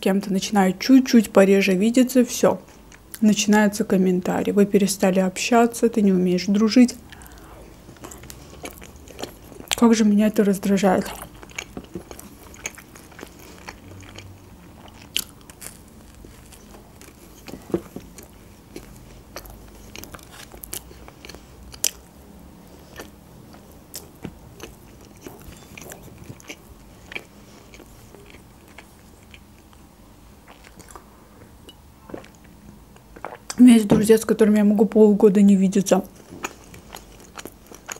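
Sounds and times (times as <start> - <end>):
person chewing food: 7.0 - 9.8, 11.0 - 33.6, 36.1 - 37.9.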